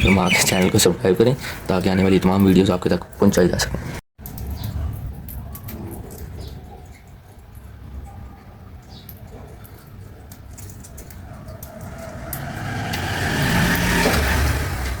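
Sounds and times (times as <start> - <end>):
vehicle passing: 11.1 - 15.0.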